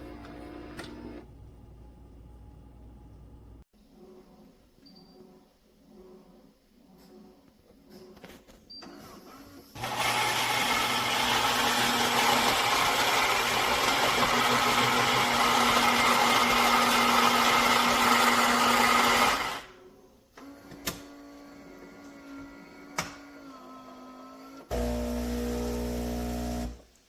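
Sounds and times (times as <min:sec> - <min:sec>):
grinder grinding coffee beans: 0:09.8 - 0:19.7, 0:24.7 - 0:26.8.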